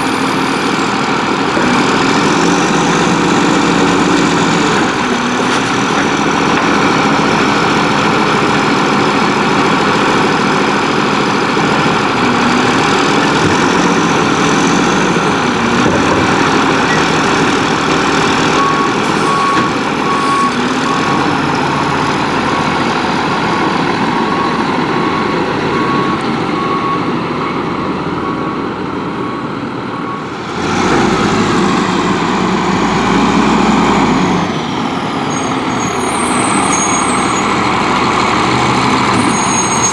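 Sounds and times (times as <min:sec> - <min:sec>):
diesel truck engine running: 0:00.0 - 0:39.9
reversing beeper: 0:11.9 - 0:34.0, 0:34.8 - 0:39.9.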